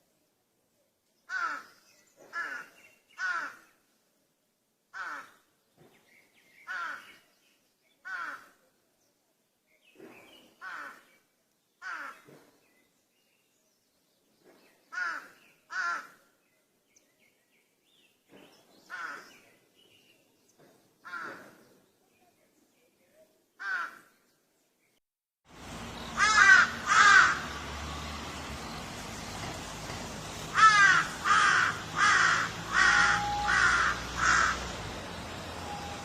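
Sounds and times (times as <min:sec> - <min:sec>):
crows cawing: 0:01.3 - 0:01.7, 0:02.3 - 0:03.7, 0:04.9 - 0:05.4, 0:06.7 - 0:07.1, 0:08.0 - 0:08.6, 0:10.6 - 0:11.0, 0:11.8 - 0:12.3, 0:14.9 - 0:16.2, 0:18.9 - 0:19.3, 0:21.0 - 0:21.6, 0:23.6 - 0:24.1, 0:26.1 - 0:27.7, 0:30.5 - 0:34.7
distant crows cawing: 0:01.3 - 0:03.8, 0:04.9 - 0:05.4, 0:06.7 - 0:07.2, 0:08.0 - 0:08.6, 0:10.6 - 0:11.1, 0:11.8 - 0:12.3, 0:14.9 - 0:16.2, 0:18.9 - 0:19.4, 0:21.0 - 0:21.6, 0:23.6 - 0:24.1, 0:25.8 - 0:28.1, 0:29.4 - 0:36.0.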